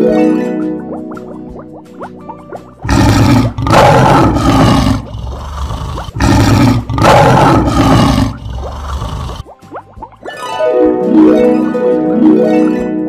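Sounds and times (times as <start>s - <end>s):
lion roaring: 2.8s - 9.4s.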